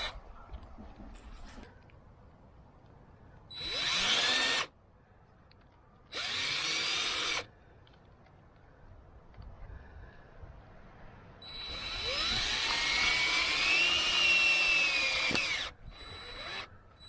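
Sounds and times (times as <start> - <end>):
power drill running: 3.5 - 4.7, 6.1 - 7.5, 11.4 - 17.0.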